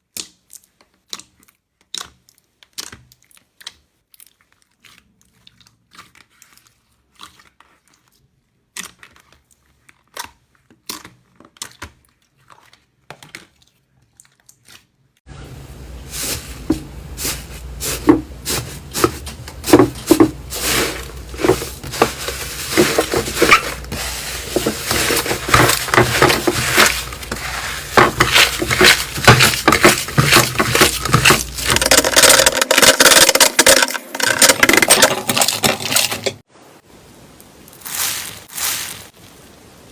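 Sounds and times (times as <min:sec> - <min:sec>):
slime squishing and crackling: 0:00.0 - 0:15.1.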